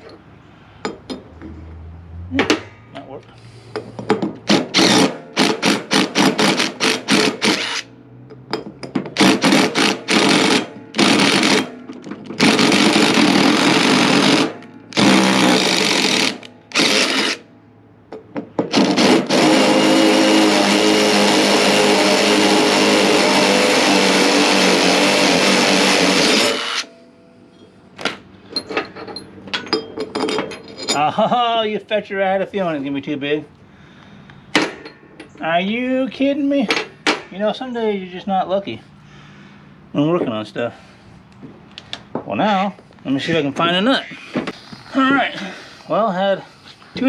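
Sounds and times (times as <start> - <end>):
handheld power tool: 4.5 - 7.9, 9.2 - 11.8, 12.4 - 17.4, 18.7 - 26.9.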